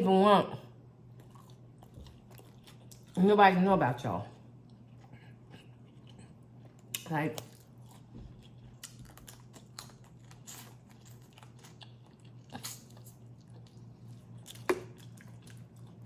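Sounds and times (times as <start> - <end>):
shells cracking and chewing: 1.2 - 3.2, 5.7 - 16.0.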